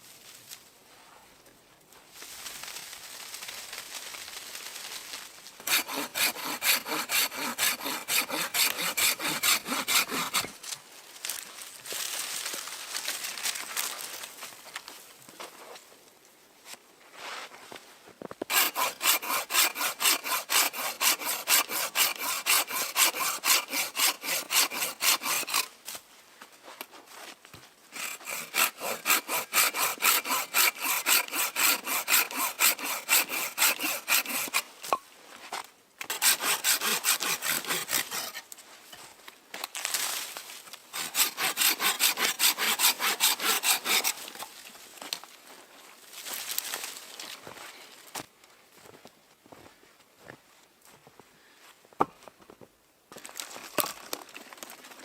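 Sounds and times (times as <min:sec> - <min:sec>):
hand saw cutting wood: 0:05.6 - 0:10.6, 0:18.5 - 0:25.7, 0:27.9 - 0:35.0, 0:36.0 - 0:38.5, 0:40.9 - 0:44.5.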